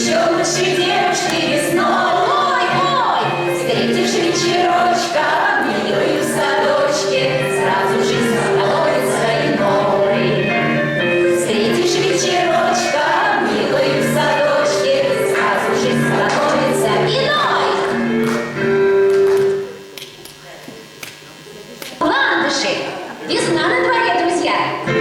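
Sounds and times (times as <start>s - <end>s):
voices singing in chorus: 0.0s - 18.2s
instrumental accompaniment: 0.0s - 20.2s.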